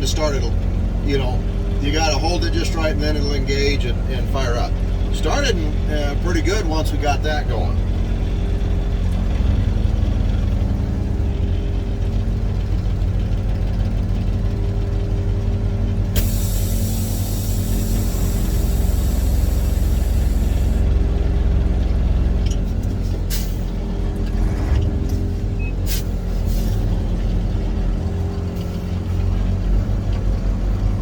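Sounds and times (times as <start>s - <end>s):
diesel engine idling: 0.0s - 31.0s
air brake hiss: 16.2s - 20.8s, 25.8s - 26.8s.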